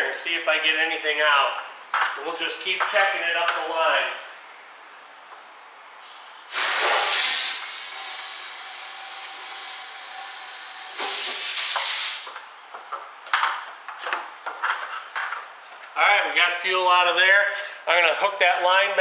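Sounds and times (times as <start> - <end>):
loud air blast: 6.0 - 12.4
air hissing through fuel line: 6.0 - 12.5.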